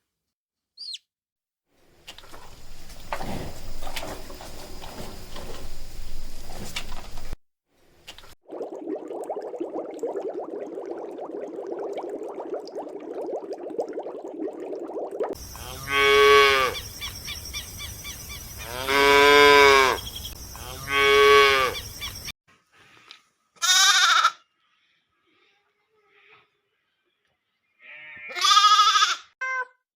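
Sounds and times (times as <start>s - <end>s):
steady rustling: 2.2s - 7.4s
cow mooing: 15.6s - 16.8s, 18.6s - 20.0s, 20.6s - 21.8s.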